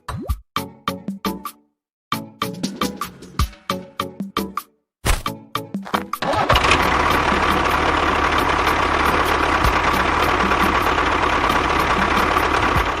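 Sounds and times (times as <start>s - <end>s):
motor running steadily: 6.5s - 13.0s.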